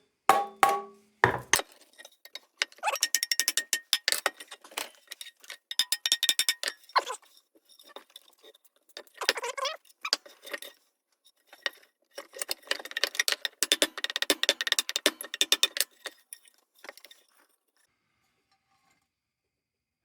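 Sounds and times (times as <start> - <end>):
metal lantern parts rattling: 0.3 - 17.6.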